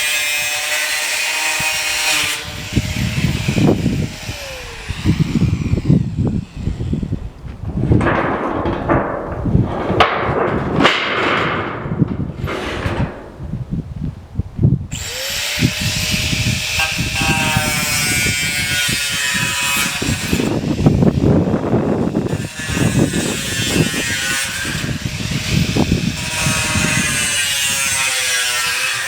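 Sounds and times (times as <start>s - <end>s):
power tool cutting metal sheet: 0.0s - 7.2s, 14.9s - 29.0s
knocks: 7.5s - 13.5s.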